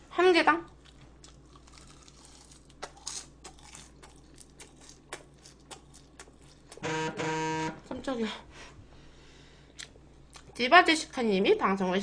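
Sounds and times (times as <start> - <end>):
chewing crunches: 0.7 - 6.8.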